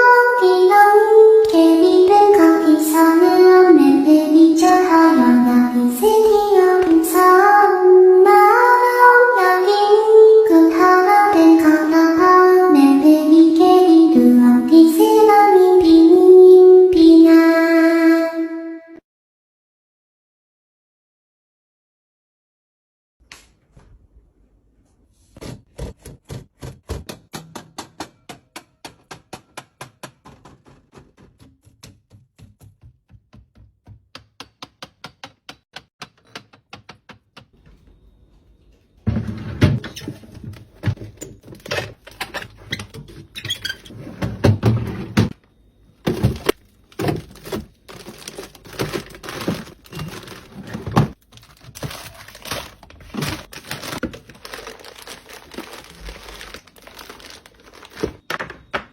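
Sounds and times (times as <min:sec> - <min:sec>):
plastic packaging crinkling: 0:46.2 - 0:58.3.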